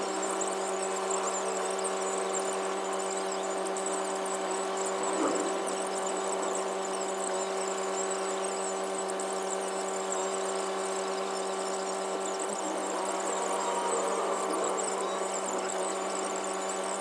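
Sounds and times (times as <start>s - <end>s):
steady hum: 12.0s - 17.0s.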